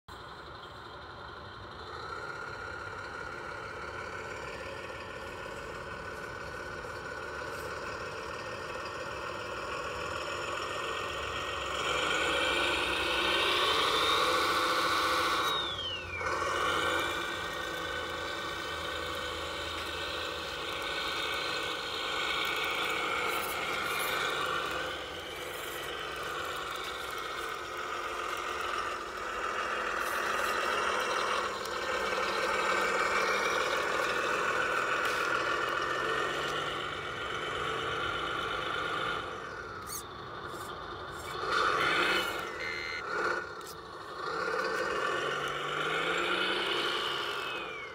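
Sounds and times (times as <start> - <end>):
model truck motor drone: 0.1 - 47.9
short falling whistle: 42.5 - 43.1.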